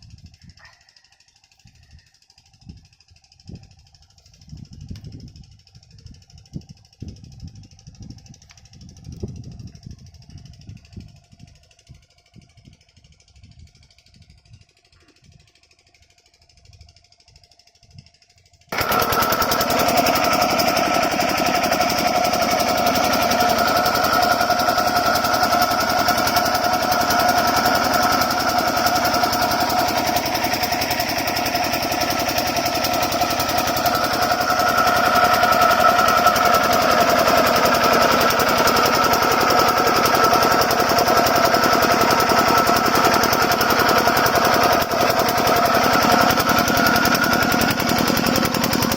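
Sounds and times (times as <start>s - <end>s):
diesel pump engine knocking: 0.1s - 48.9s.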